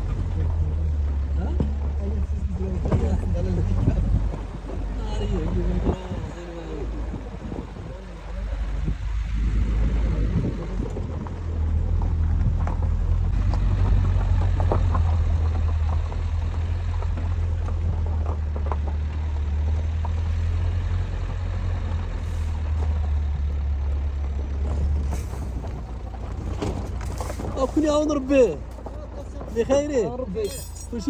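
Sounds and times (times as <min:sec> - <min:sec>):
vehicle knocks and jolts: 0:00.0 - 0:06.3, 0:08.8 - 0:21.4, 0:23.9 - 0:30.0
vehicle rumbling on rough track: 0:00.0 - 0:31.0.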